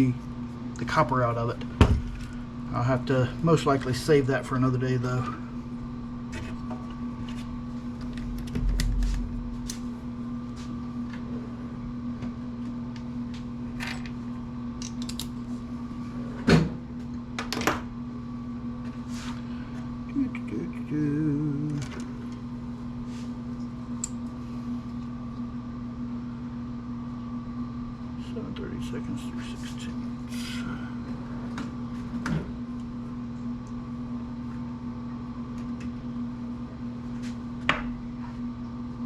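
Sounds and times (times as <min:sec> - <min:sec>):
low electrical hum: 0:00.0 - 0:39.0
metal parts clicking and knocking: 0:14.8 - 0:15.3.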